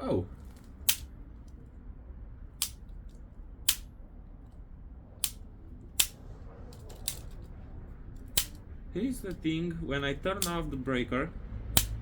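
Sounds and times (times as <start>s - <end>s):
low steady hum: 0.0s - 12.0s
circuit breaker snapping: 0.8s - 1.2s, 2.6s - 2.9s, 3.6s - 3.9s, 8.3s - 8.6s, 10.3s - 10.8s, 11.7s - 12.0s.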